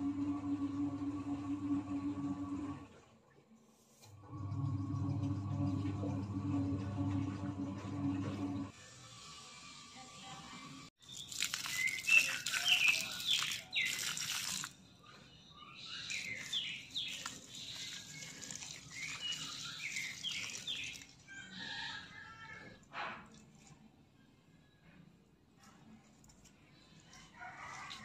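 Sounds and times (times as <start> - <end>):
small birds chirping: 11.0 - 21.1.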